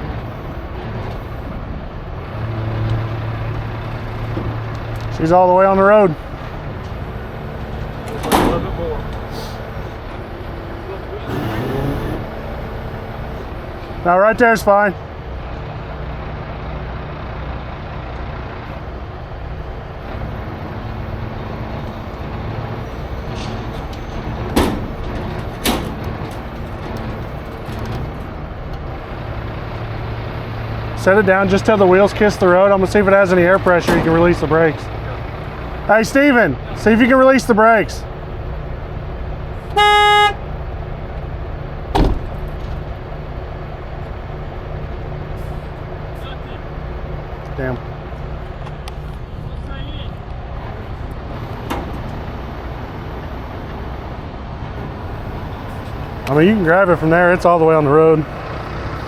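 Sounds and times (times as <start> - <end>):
diesel engine running: 0.0 - 59.0
vehicle horn toot: 39.7 - 40.4.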